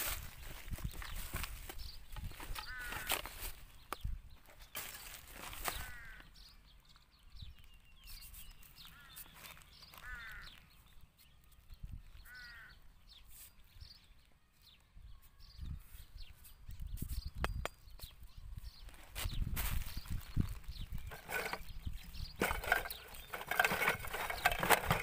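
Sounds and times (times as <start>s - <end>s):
bird harsh calls: 1.2s - 3.7s, 4.7s - 6.7s, 8.1s - 10.9s, 12.1s - 13.5s.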